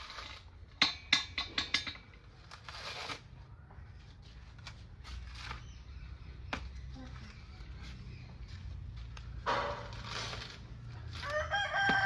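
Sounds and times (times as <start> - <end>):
scraping rustle: 2.3 - 3.5, 7.0 - 12.0.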